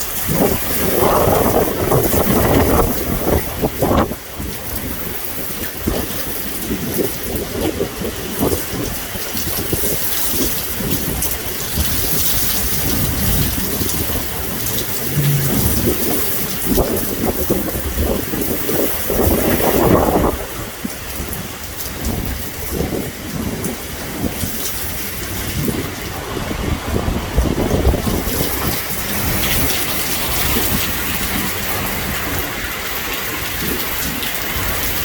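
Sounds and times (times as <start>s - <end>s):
heavy rain pouring: 0.0s - 35.0s
thunder rumbling: 11.9s - 20.5s
wind gusting: 11.9s - 20.5s.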